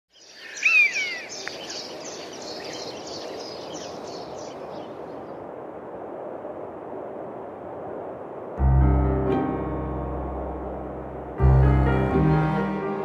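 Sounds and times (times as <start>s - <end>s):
birds chirping and twittering: 0.1s - 5.4s
bird call with falling whistled notes: 0.2s - 4.6s
rushing outdoor ambience: 0.2s - 13.0s.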